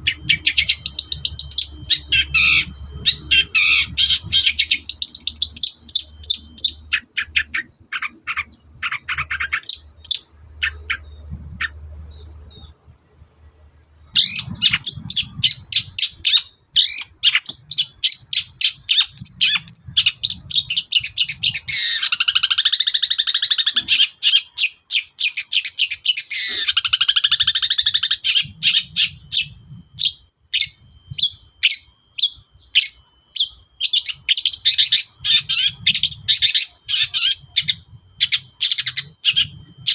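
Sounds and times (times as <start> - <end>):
shrike singing chattering song: 0.0 - 39.9.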